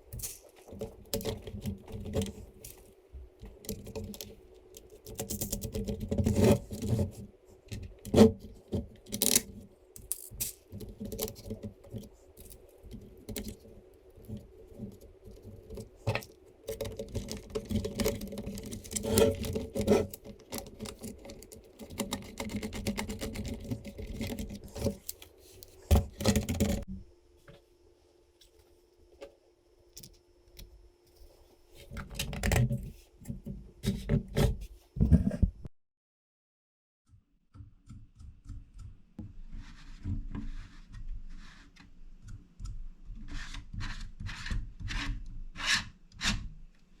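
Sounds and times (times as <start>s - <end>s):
plastic parts clicking and rattling: 0.1s - 26.8s.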